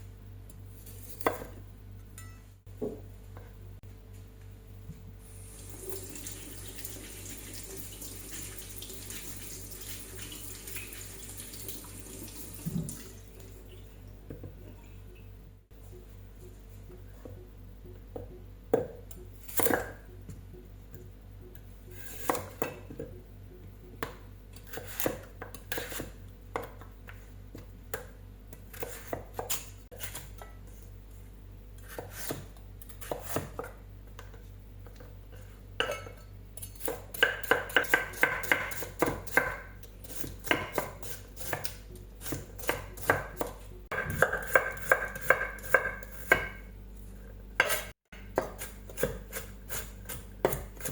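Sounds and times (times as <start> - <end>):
knife chopping carrot on board: 36.8 - 46.6, 47.6 - 50.9.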